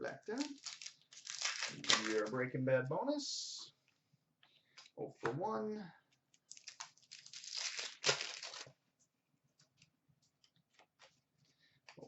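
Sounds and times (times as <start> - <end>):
wrapper tearing and crinkling: 0.4 - 2.4, 6.5 - 8.7.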